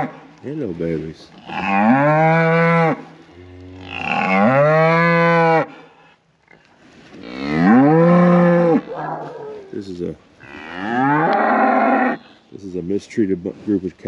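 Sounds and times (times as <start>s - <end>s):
cows mooing: 1.4s - 5.8s, 7.2s - 9.7s, 10.4s - 12.3s.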